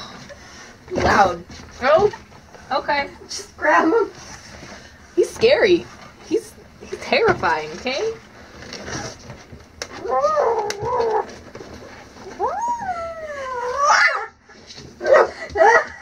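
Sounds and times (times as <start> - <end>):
kitten yowling: 12.4 - 14.3.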